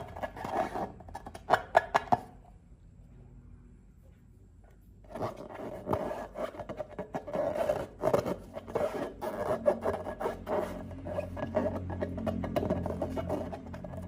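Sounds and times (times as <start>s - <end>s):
crackly rubbing and scraping slime: 0.0s - 2.2s, 5.0s - 14.0s.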